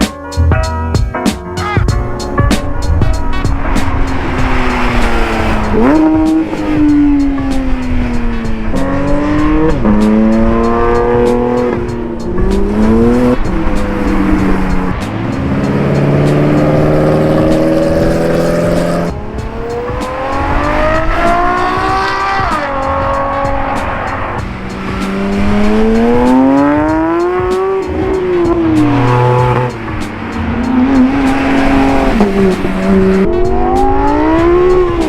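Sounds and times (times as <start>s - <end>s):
sports car engines accelerating: 1.6s - 35.0s.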